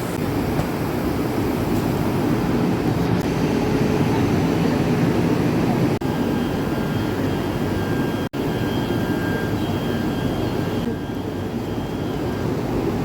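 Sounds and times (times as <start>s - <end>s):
train rumbling: 0.0s - 13.0s
thin high whine: 6.0s - 13.0s.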